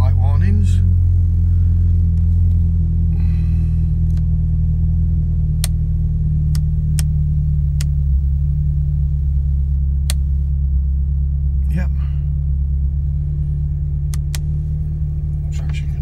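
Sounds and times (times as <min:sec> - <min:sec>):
car engine idling: 0:00.0 - 0:16.0
switch clicks: 0:14.1 - 0:14.5.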